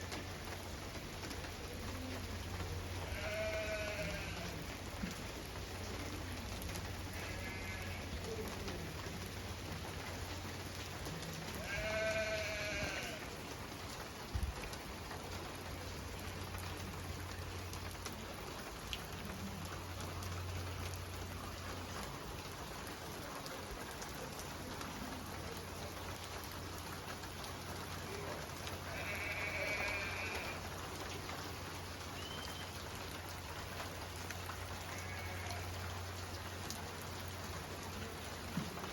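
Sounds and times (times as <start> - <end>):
steady rain falling: 0.0 - 38.9
farm animal bleating: 3.0 - 4.6, 7.1 - 8.1, 11.6 - 13.2, 28.8 - 30.7, 34.8 - 35.8.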